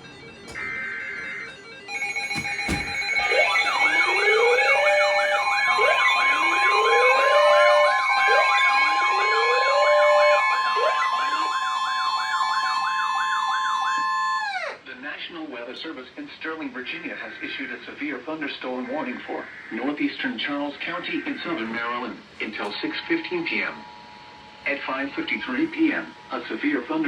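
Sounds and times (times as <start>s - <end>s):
rising siren wails: 0.0s - 14.8s
steady alarm tones: 0.0s - 14.8s, 18.7s - 27.0s
warbling electronic siren: 0.0s - 14.8s, 18.8s - 27.0s.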